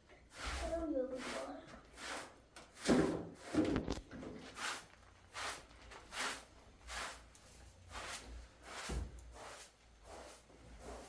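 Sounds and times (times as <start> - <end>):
swishing cleaning strokes: 0.3 - 3.6, 4.5 - 11.0.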